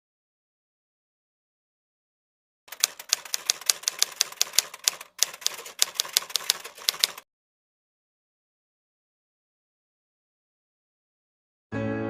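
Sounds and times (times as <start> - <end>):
typewriter keys clacking: 2.7 - 7.2.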